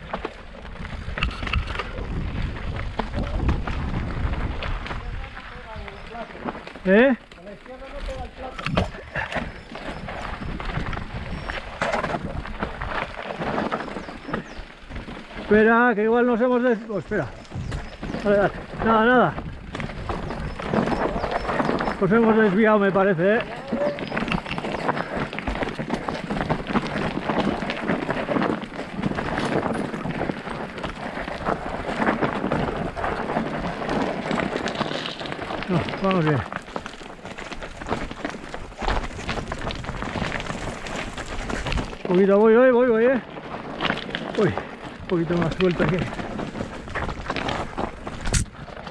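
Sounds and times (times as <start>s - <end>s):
bike tyres on rocky trail: 0.0s - 48.9s
wind on microphone: 0.6s - 6.2s, 8.0s - 15.6s, 17.0s - 22.4s, 44.5s - 48.9s.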